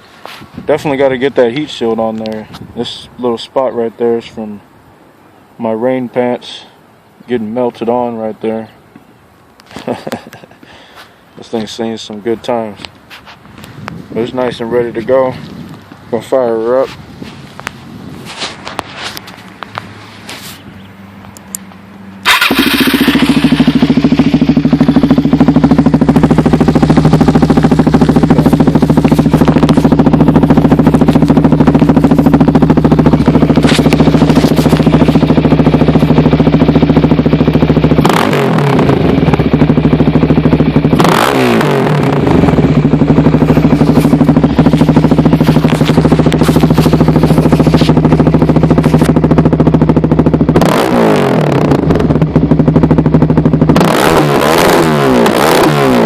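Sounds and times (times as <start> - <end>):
motorcycle engine idling: 20.6 - 56.0.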